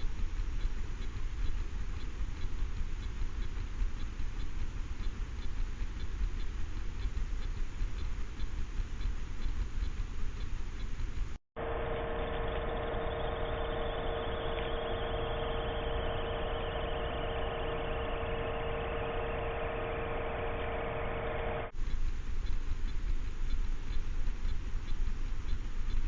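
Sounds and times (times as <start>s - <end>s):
two-tone machine hum: 0.0s - 26.0s.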